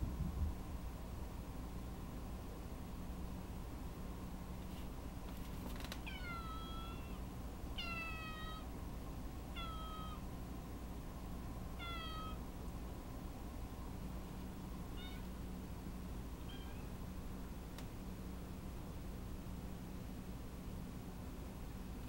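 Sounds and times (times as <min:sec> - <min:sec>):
steady low hum: 0:00.0 - 0:22.0
cat meowing: 0:06.0 - 0:07.2, 0:07.8 - 0:08.7, 0:09.5 - 0:10.2, 0:11.8 - 0:12.4, 0:14.9 - 0:15.3, 0:16.4 - 0:16.9.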